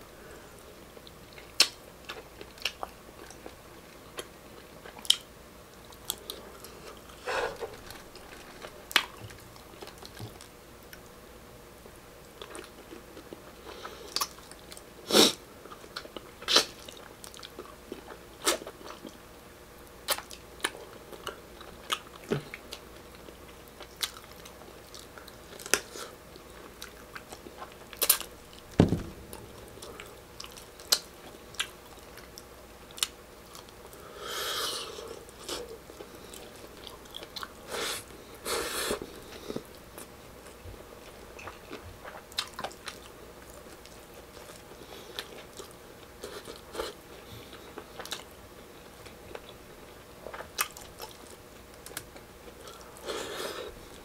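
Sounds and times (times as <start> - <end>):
low thump: 28.8 - 30.2
wet chewing with lip smacks: 40.0 - 48.3.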